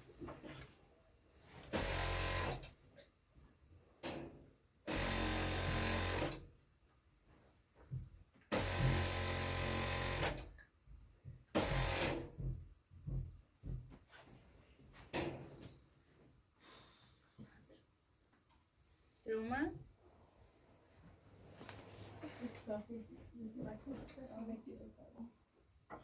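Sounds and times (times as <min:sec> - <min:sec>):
sewing machine stitching: 0:01.6 - 0:02.7, 0:04.9 - 0:06.4, 0:08.5 - 0:10.5, 0:11.5 - 0:12.3.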